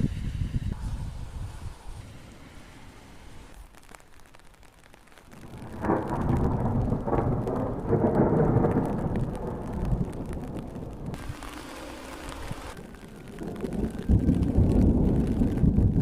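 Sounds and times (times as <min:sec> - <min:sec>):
rain falling: 0:00.8 - 0:16.0
thunder rumbling: 0:05.3 - 0:16.0.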